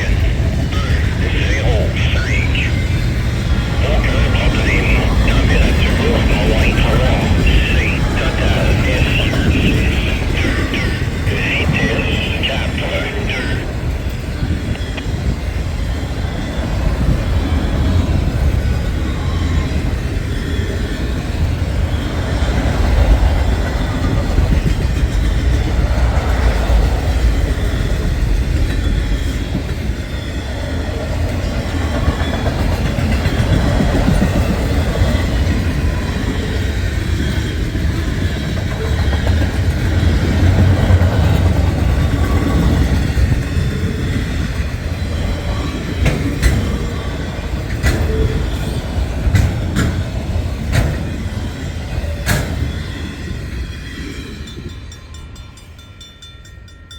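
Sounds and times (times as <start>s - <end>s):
steel wheels rumbling on rails: 0.0s - 56.2s.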